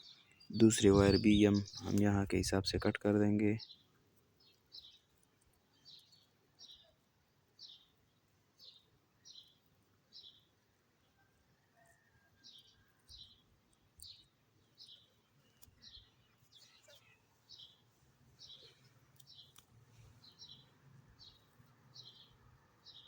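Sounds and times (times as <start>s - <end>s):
bird chirps: 0.0s - 2.9s, 12.4s - 17.8s, 18.4s - 23.0s
faint clicks: 18.8s - 19.8s.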